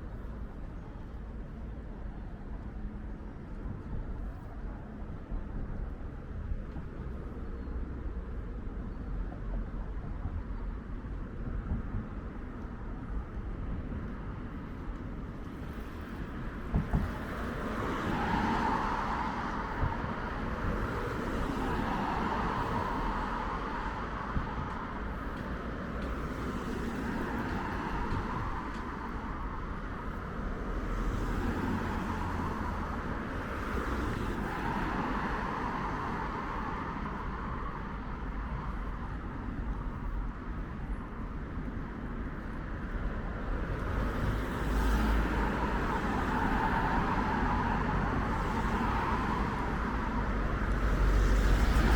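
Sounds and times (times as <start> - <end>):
low traffic rumble: 0.0 - 51.9
cars passing: 13.8 - 51.9.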